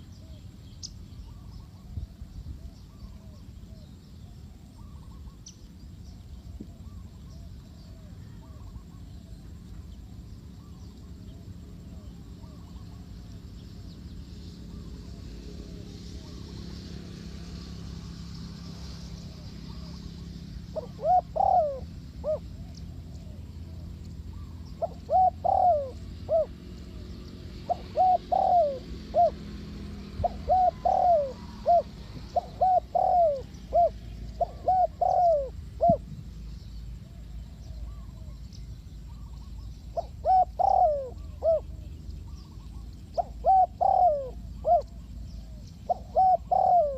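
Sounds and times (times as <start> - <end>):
dove cooing: 19.3 - 36.2, 39.0 - 46.9.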